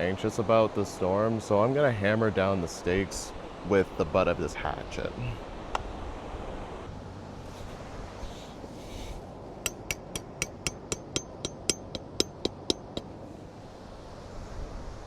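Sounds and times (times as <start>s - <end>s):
hatchet hammering tent stake: 9.6s - 13.3s.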